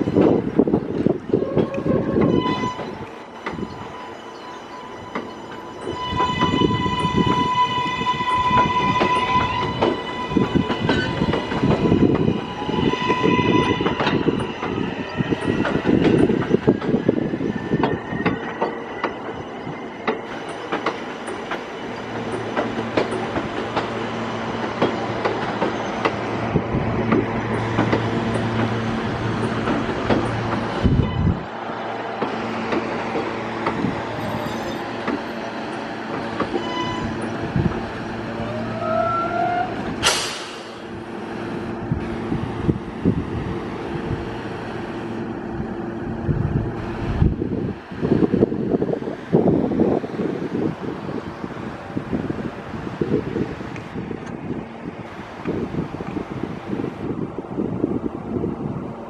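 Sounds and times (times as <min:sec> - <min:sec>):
high electric train whine: 0:00.0 - 0:59.0
train wheels clicking over rail joints: 0:08.5 - 0:31.0, 0:32.1 - 0:38.0, 0:39.8 - 0:41.2.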